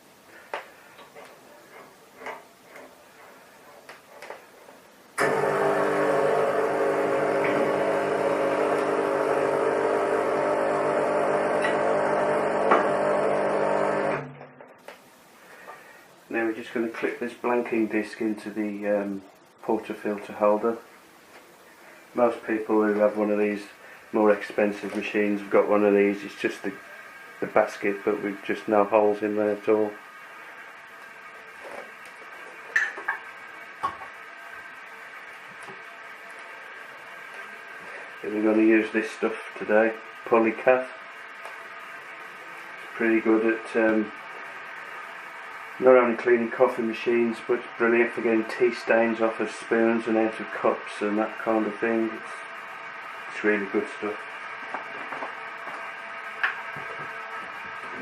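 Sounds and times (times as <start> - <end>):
faint steady hum: 0.0 - 58.0
espresso machine pump humming: 5.2 - 14.2.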